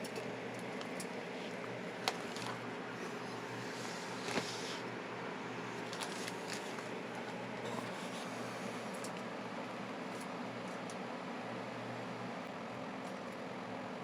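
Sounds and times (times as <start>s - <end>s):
electrical fan hum: 0.0s - 14.0s.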